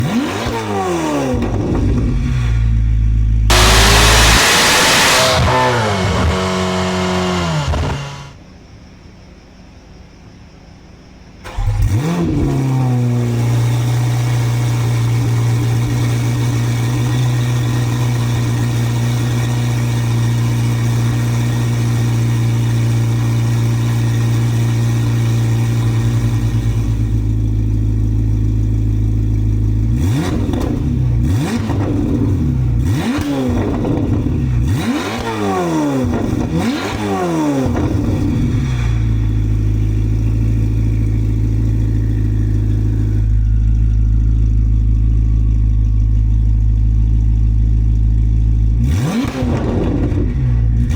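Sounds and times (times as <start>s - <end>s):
engine throttle blips: 0.0s - 8.5s, 11.4s - 50.9s
car engine idling: 0.0s - 50.9s.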